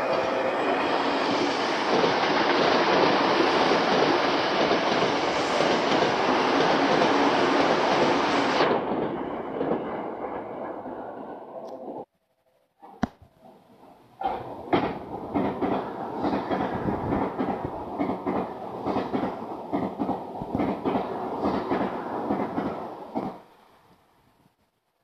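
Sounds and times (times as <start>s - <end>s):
train wheels clattering on rail: 1.3s - 11.3s, 14.2s - 23.4s.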